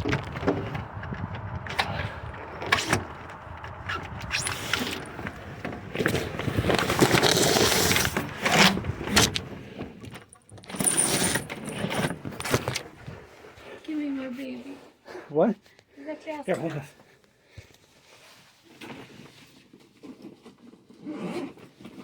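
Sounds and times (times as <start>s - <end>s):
sharp clicks and knocks: 0.0s - 7.4s
handling rustling and scraping: 0.0s - 14.6s.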